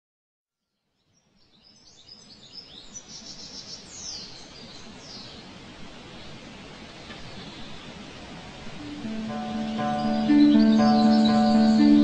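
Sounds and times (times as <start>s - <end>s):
steady background noise: 2.3s - 12.0s
birds chirping: 8.8s - 12.0s.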